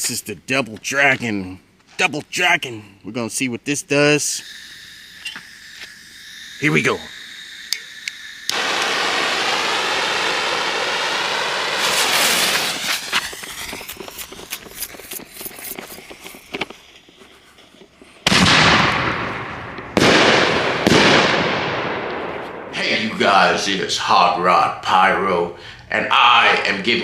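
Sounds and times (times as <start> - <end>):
firework rushing hiss: 3.7 - 21.9
firework crackling pops: 4.4 - 22.6
firework loud bang: 8.5 - 15.9, 18.2 - 22.8.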